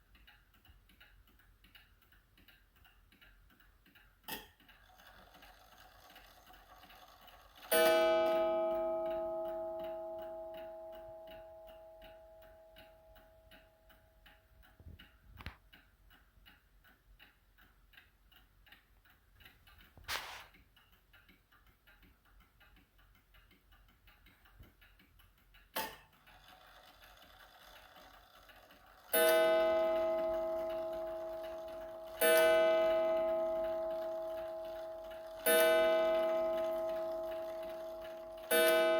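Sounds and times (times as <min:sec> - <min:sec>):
clock ticking: 0:00.0 - 0:38.9
clock striking: 0:04.3 - 0:14.0, 0:25.8 - 0:38.9.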